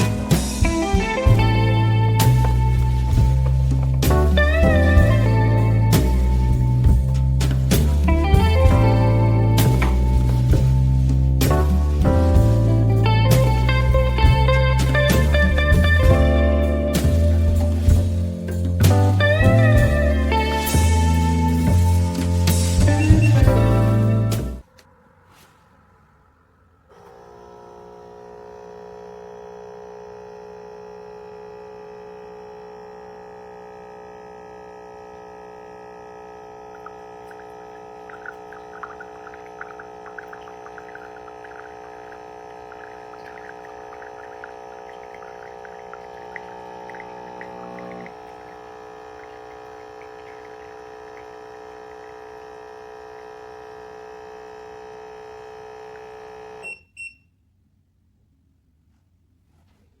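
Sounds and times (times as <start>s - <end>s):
coffee maker pump humming: 0.0s - 24.6s, 26.9s - 56.9s
coffee trickling into cup: 32.2s - 52.6s.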